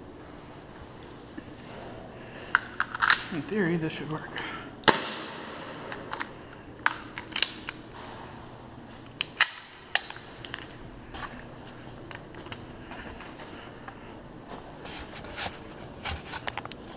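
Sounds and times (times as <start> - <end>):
sharp irregular clicks and cracks: 5.9 - 7.8, 9.2 - 10.8.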